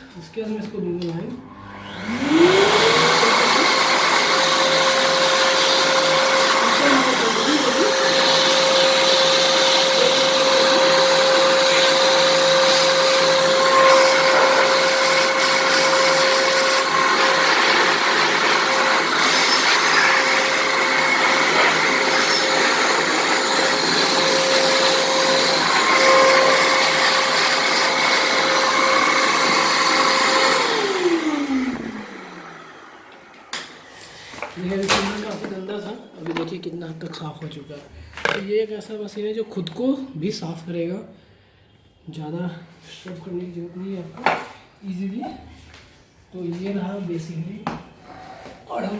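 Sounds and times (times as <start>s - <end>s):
vacuum cleaner motor whine: 1.3s - 35.6s.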